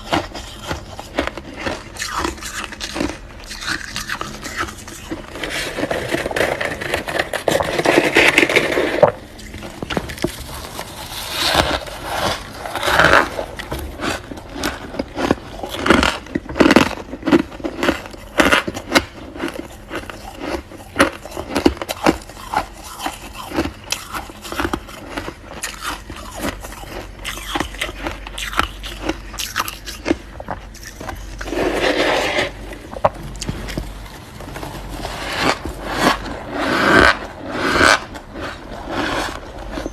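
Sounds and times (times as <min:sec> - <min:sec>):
frost being scraped: 0:00.0 - 0:13.7, 0:30.7 - 0:32.9, 0:34.4 - 0:39.9
ice crunching while chewed: 0:00.0 - 0:39.9.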